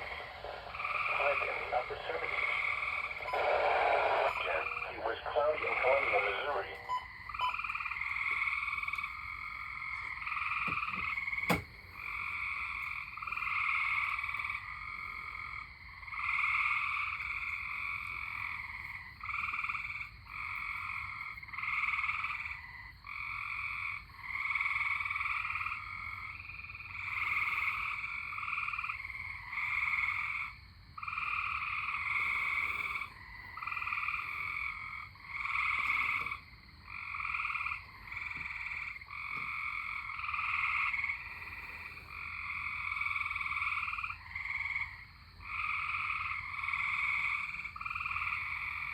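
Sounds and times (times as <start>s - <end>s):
tree frogs trilling: 0.0s - 48.9s.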